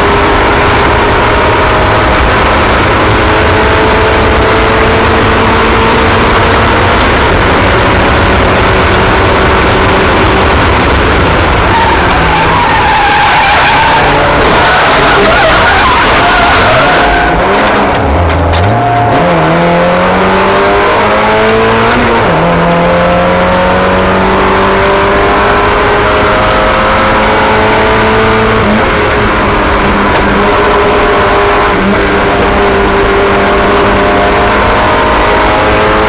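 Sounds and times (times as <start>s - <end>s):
race car engines running hard: 0.0s - 36.0s
tyres skidding: 9.4s - 20.2s.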